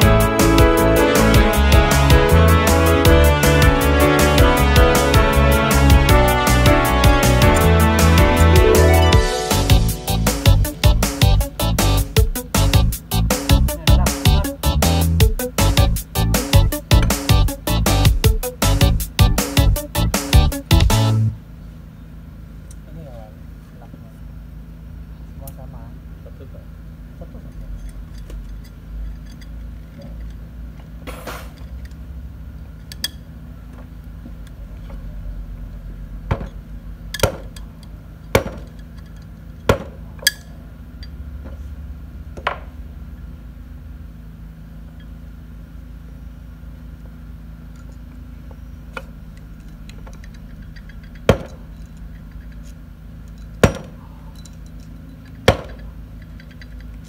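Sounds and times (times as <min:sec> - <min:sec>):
steady low hum: 0:00.0 - 0:57.0
hand tools clinking on metal: 0:36.4 - 0:41.2, 0:49.6 - 0:57.0.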